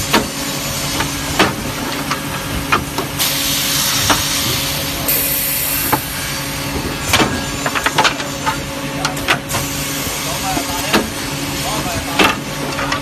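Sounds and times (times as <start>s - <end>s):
machine hiss: 3.2s - 7.6s.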